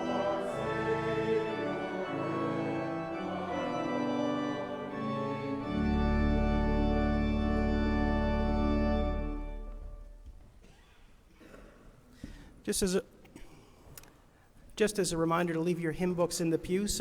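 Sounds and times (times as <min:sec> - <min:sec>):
church organ playing chords: 0:00.0 - 0:10.2.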